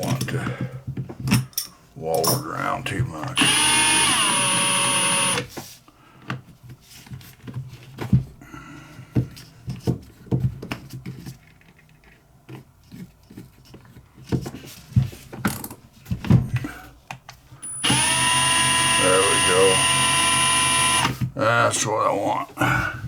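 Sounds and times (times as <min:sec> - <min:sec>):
power drill spinning down: 0:03.4 - 0:05.5, 0:17.6 - 0:21.2.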